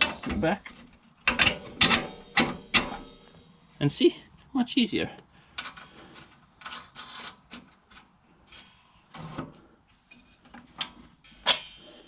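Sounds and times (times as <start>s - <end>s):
hand tools scraping and clicking on metal: 5.5s - 9.1s, 9.8s - 12.0s.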